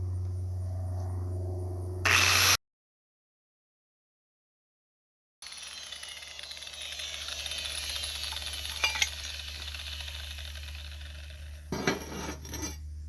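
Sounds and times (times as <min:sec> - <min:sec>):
steady low hum: 0:00.0 - 0:02.6
steel pieces clinking: 0:05.4 - 0:12.8.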